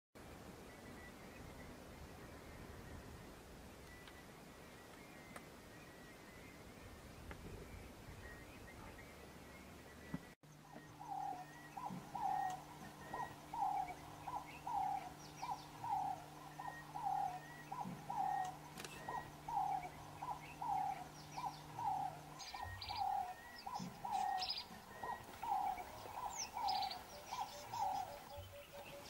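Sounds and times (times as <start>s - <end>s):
low steady hum: 0.2s - 29.0s
birds chirping: 0.6s - 29.0s
bird hooting: 10.6s - 29.0s.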